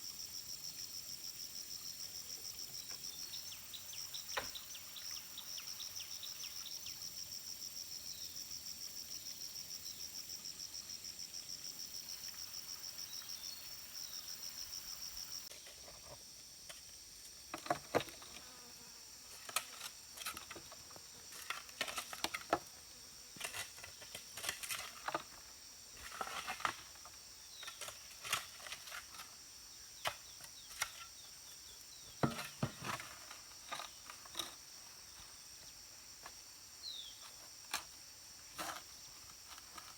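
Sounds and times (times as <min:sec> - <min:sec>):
knocks and scrapes: 0:15.5 - 0:18.4, 0:19.3 - 0:22.7, 0:26.0 - 0:29.4, 0:32.1 - 0:34.7, 0:37.2 - 0:39.9.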